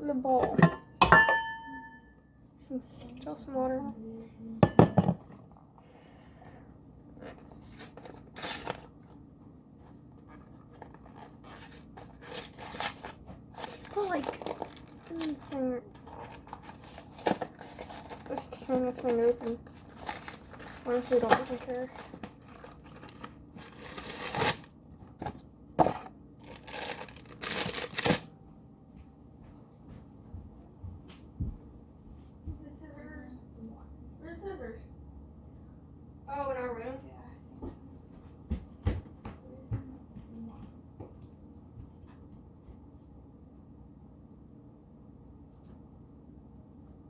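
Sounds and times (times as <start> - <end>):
packaging crinkling: 7.2 - 9.2, 10.4 - 25.2, 25.8 - 28.3
handling rustles: 9.8 - 28.2.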